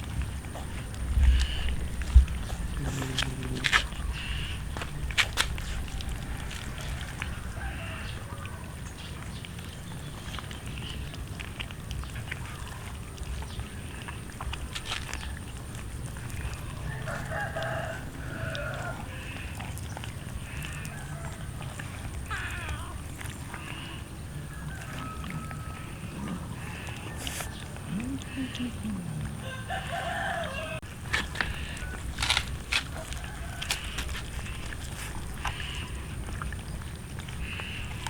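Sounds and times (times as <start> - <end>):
animal calls: 0.6 - 8.9, 16.2 - 38.0.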